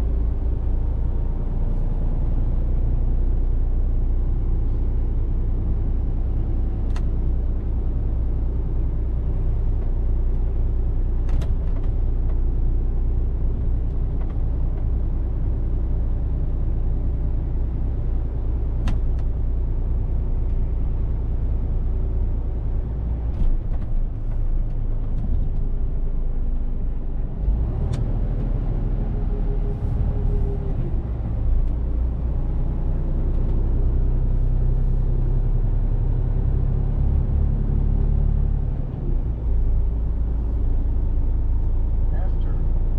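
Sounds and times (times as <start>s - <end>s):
truck engine and road drone: 0.0s - 42.9s.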